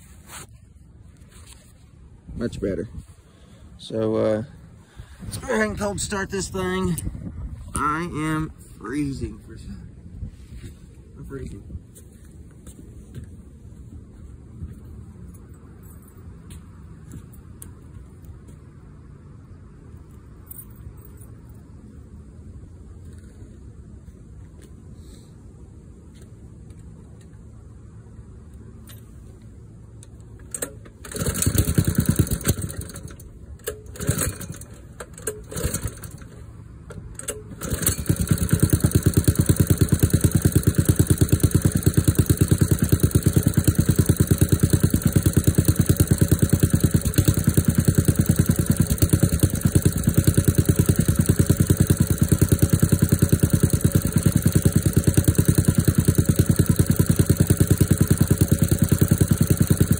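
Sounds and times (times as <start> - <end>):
engine idling: 30.0 - 59.9
engine cranking: 30.4 - 59.9.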